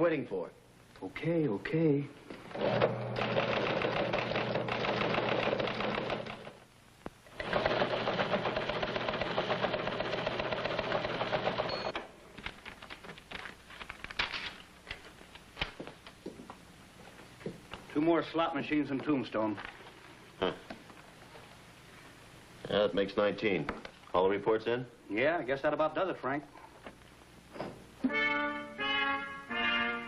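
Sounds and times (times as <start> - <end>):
teletype machine clattering: 2.7 - 6.6, 7.4 - 11.7.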